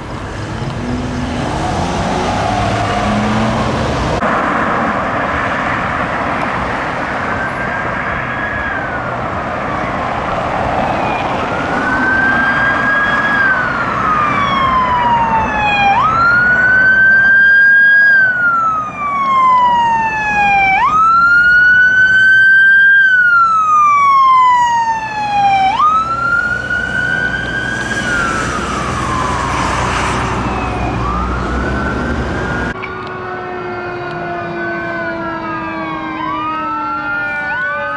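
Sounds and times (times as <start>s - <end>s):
road noise: 0.0s - 37.9s
siren wailing: 0.0s - 37.9s.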